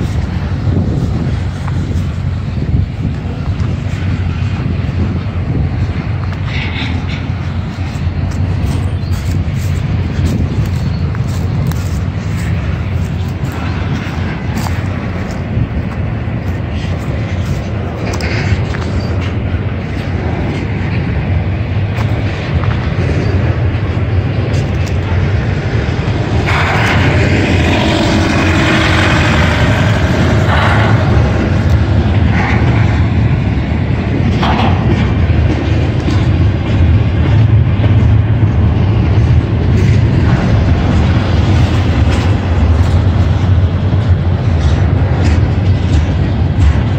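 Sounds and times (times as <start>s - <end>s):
freight train rumbling: 0.0s - 46.9s
hissing noise: 23.6s - 34.0s.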